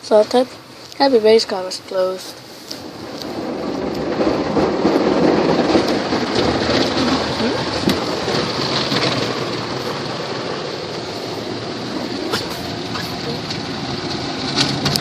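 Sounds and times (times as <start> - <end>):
water spray rushing: 11.0 - 13.6.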